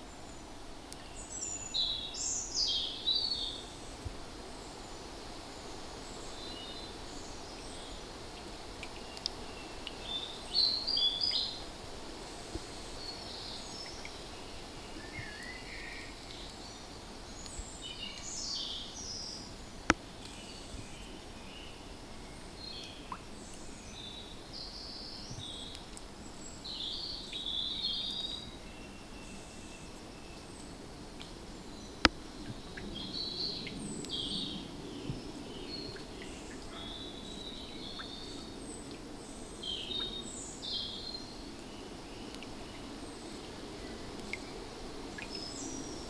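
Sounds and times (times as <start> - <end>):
small birds chirping and singing: 0.0 - 30.9, 31.7 - 46.0
faint ticks: 7.5 - 10.2, 17.4 - 18.4, 25.4 - 26.1, 30.6 - 31.4, 42.3 - 45.7.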